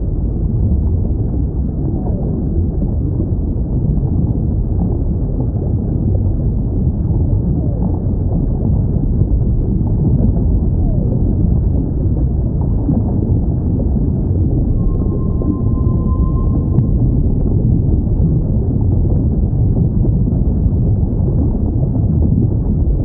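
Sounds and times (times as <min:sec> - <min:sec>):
underwater sea rumble: 0:00.0 - 0:23.0
gliding whale calls: 0:14.6 - 0:18.2.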